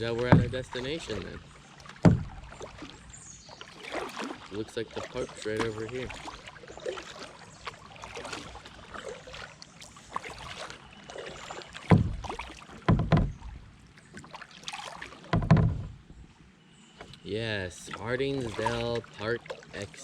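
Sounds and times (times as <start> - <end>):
loud low thumps: 0.0 - 0.8, 2.0 - 2.4, 11.9 - 12.3
kayak paddle strokes: 0.0 - 16.0, 17.0 - 20.0
water splashing: 0.0 - 16.0, 17.0 - 20.0.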